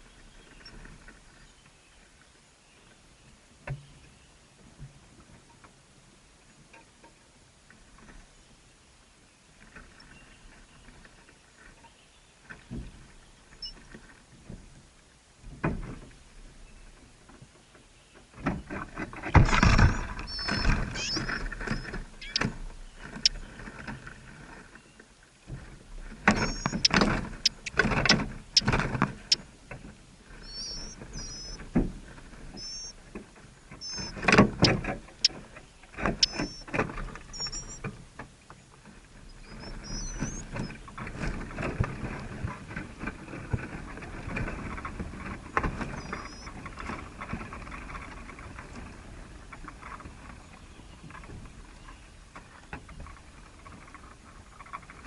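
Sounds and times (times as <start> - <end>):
short high bird chirps: 19.5 - 22.5, 26.4 - 27.8, 30.4 - 31.6, 32.6 - 32.9, 33.8 - 34.8, 36.2 - 36.7, 37.3 - 37.8, 39.4 - 40.5, 46.0 - 46.5.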